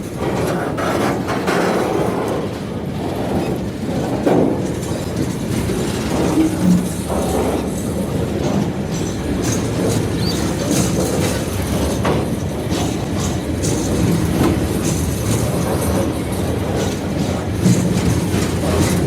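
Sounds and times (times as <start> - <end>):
train wagons rumbling: 0.0 - 19.0
wheels clacking over rail joints: 0.0 - 19.0
faint wheel squeal: 10.1 - 10.6.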